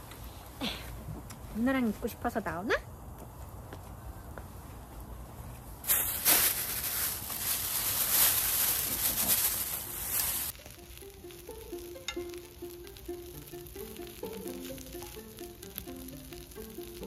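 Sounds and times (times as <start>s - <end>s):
food sizzling in a hot pan: 5.9s - 17.0s.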